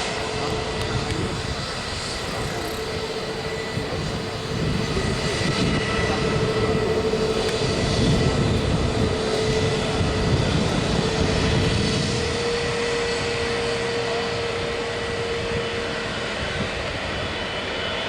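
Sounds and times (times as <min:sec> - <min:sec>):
jet engines rushing and whining: 0:00.0 - 0:18.0.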